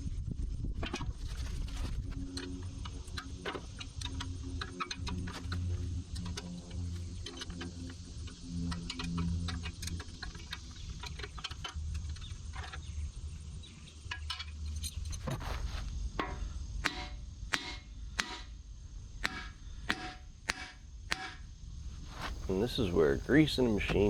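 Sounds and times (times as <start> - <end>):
low steady hum: 22.0 - 24.0.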